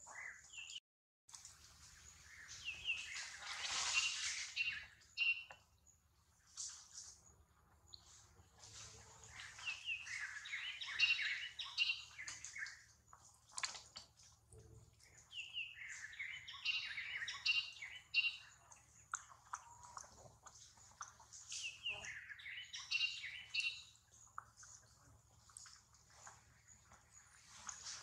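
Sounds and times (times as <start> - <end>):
birds chirping and singing: 9.3 - 12.9, 15.2 - 18.7, 21.5 - 23.9.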